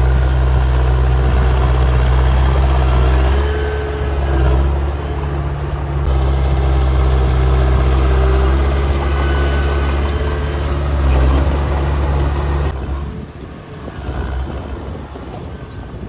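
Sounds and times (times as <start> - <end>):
heavy diesel machinery humming: 0.0 - 16.0.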